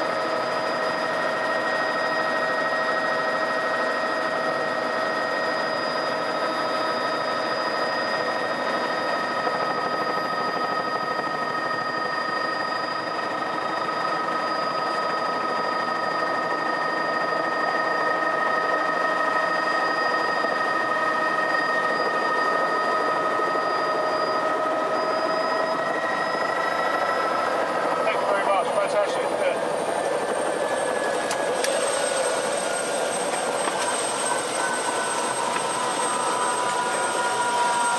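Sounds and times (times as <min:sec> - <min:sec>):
helicopter engine and rotor drone: 0:00.0 - 0:37.9
high whine tones: 0:19.7 - 0:37.9.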